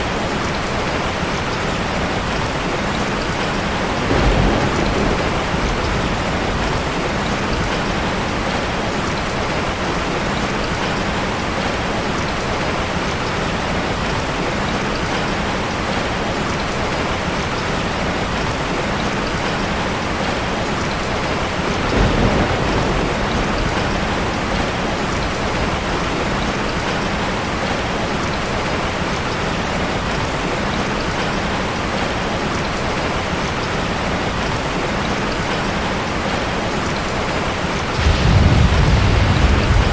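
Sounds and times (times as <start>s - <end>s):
heavy rain hissing: 31.9s - 39.9s
low rumble: 38.0s - 39.9s.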